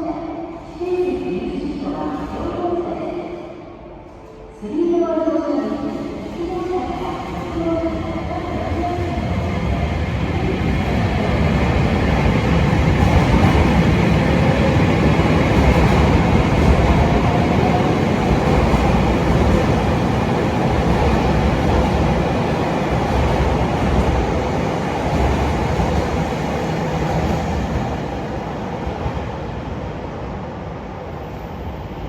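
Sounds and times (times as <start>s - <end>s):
train wheels rumbling on rails: 6.2s - 29.8s.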